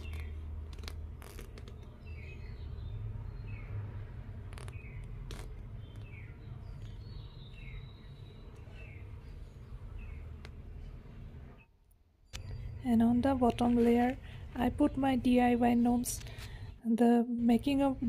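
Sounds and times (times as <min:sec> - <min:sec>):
small bird chirping: 0:01.3 - 0:03.8, 0:04.4 - 0:10.4.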